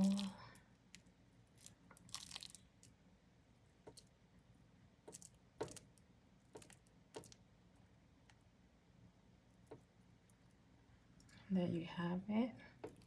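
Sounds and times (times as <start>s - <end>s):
soft clicks and taps of handling food: 5.0s - 7.4s, 9.5s - 10.6s.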